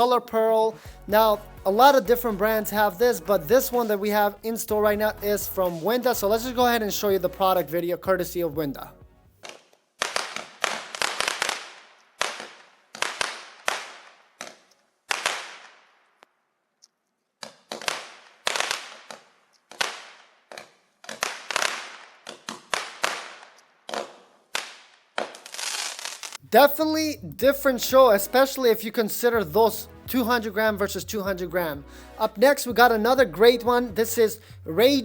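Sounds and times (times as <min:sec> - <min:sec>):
fireworks cake bangs: 0:09.4 - 0:16.0, 0:17.5 - 0:26.4.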